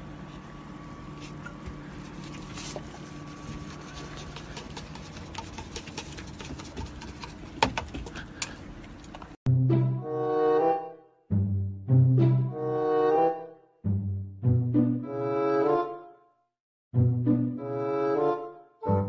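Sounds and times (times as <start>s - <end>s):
music with low horn note: 17.0s - 19.0s.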